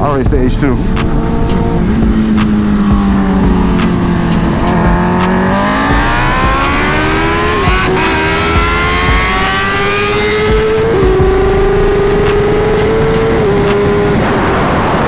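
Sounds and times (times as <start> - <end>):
motorcycle engine accelerating: 0.0 - 15.0
wind rush on microphone: 12.0 - 15.0.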